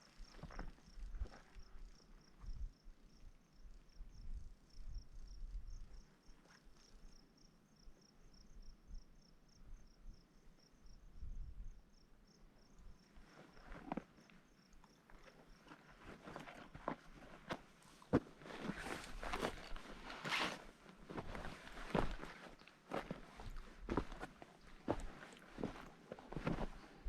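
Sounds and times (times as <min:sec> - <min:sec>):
cricket chirping: 0:00.0 - 0:17.6
crunching footsteps: 0:15.0 - 0:27.0.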